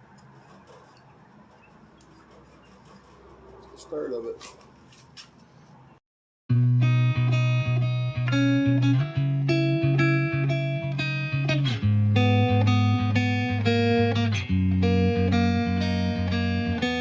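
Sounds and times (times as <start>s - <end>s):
low bass line: 6.5s - 17.0s
plucked guitar melody: 6.5s - 17.0s.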